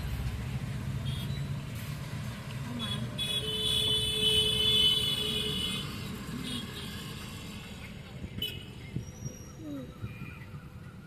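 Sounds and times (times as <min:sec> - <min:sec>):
highway traffic rumble: 0:00.0 - 0:11.0
vehicle horn: 0:02.8 - 0:05.9.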